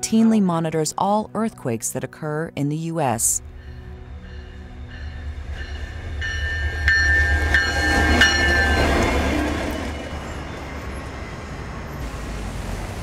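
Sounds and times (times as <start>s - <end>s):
diesel train rumbling past: 3.4s - 13.0s.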